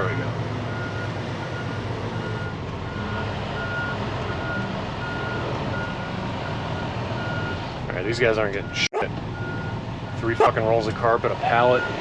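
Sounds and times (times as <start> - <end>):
truck backup alarm beeping: 0.6 - 7.6, 11.6 - 12.0.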